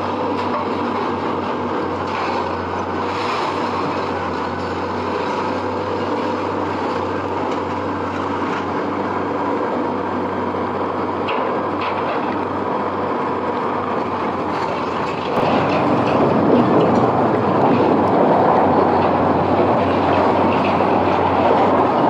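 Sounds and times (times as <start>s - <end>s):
heavy machinery engine drone: 0.0s - 22.0s.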